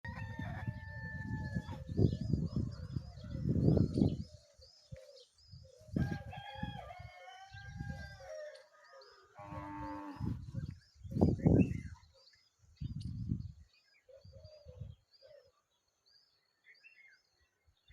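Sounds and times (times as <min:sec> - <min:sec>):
small birds chirping: 0:00.2 - 0:17.9.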